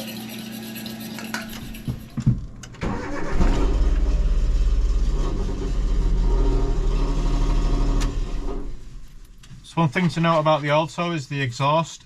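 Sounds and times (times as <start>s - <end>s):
car engine starting and running: 1.4s - 10.9s.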